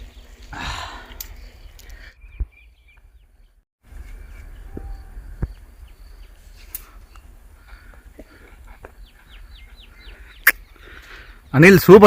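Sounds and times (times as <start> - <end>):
faint bird chirps: 0.6 - 7.8.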